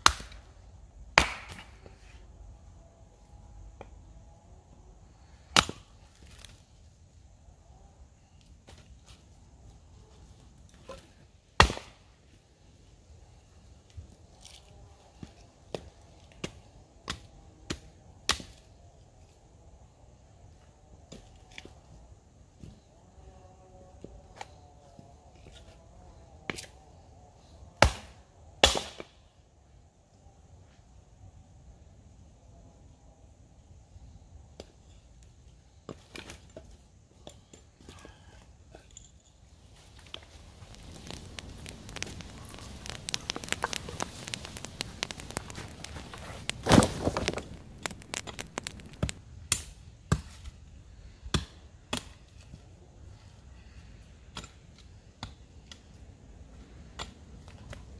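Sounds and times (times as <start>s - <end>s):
sharp snaps: 1.2s - 1.7s, 40.6s - 49.7s
dense crackling and clicking: 40.1s - 49.2s
rustling burst: 40.4s - 49.2s.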